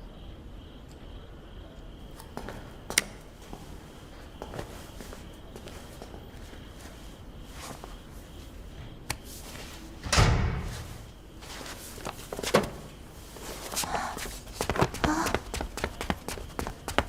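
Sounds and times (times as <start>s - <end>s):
heavy thud: 10.0s - 11.2s.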